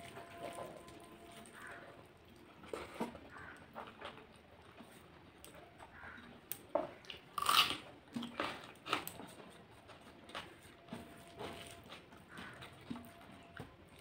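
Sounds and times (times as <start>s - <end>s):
person chewing with wet smacks: 0.0s - 14.0s
crunchy bite: 7.1s - 9.2s.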